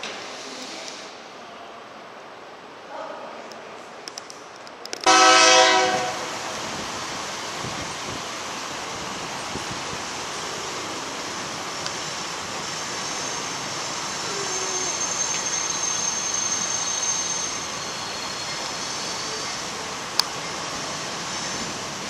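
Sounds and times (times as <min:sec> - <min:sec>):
distant freight train: 0:04.8 - 0:22.0.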